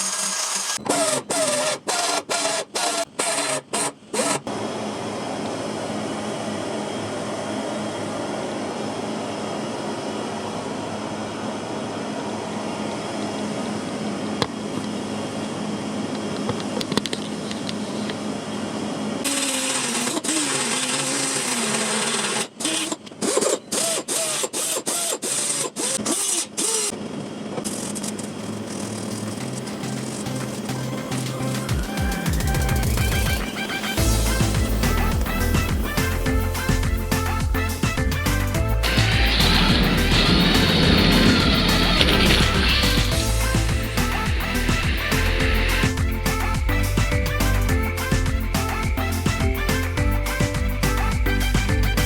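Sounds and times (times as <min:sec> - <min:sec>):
small power tool running: 0:00.0 - 0:04.7, 0:19.2 - 0:26.9, 0:38.6 - 0:47.0.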